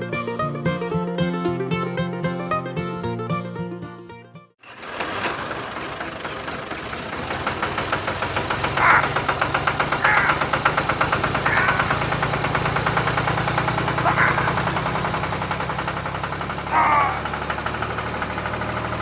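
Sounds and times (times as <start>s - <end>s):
engine running with fast knock: 4.6s - 19.0s.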